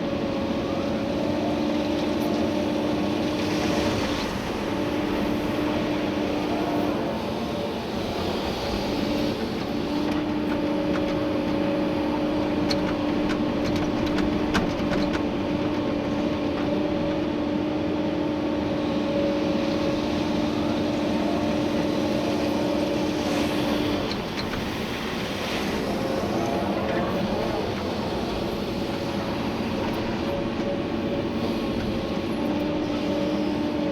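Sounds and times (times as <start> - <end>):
excavator engine and hydraulics: 0.0 - 33.9
hydraulic whine: 18.6 - 33.9.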